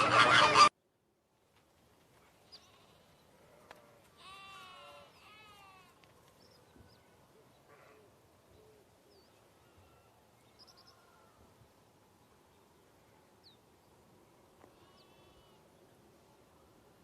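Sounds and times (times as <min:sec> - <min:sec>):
faint bleat: 0:02.6 - 0:06.0, 0:09.6 - 0:10.2, 0:14.7 - 0:15.6.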